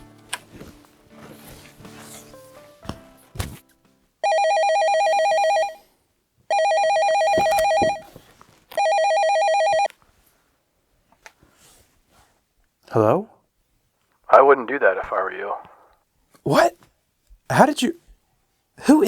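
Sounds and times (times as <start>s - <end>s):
telephone warbling ring: 4.2s - 5.8s, 6.5s - 8.1s, 8.8s - 9.9s.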